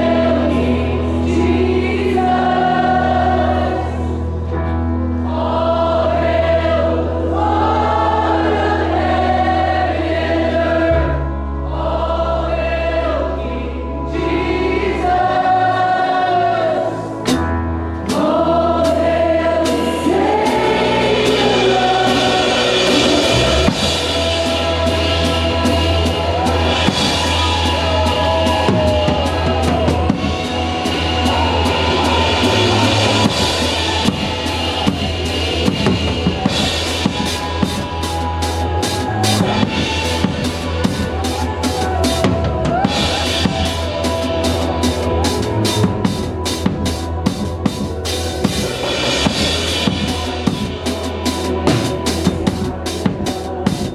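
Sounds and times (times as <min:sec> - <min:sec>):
bass and keys: 0:00.0 - 0:53.9
group of singers: 0:00.0 - 0:53.9
drum kit with cymbals: 0:17.3 - 0:53.9.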